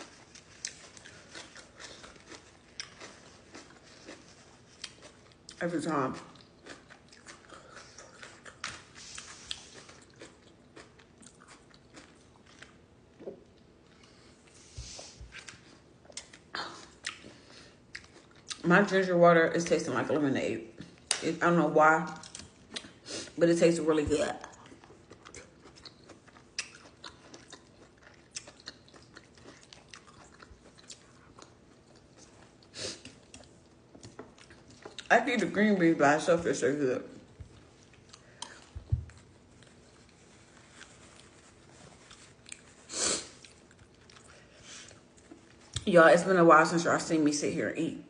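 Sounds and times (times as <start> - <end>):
chewing and biting food: 0.0 - 14.2, 15.3 - 18.6, 24.4 - 35.1, 37.2 - 45.9.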